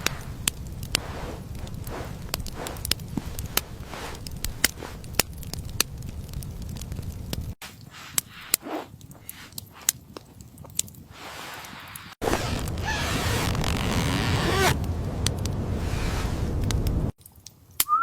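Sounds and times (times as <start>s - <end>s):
sharp crackles and clicks: 0.0s - 18.0s
low rumble: 13.5s - 17.1s.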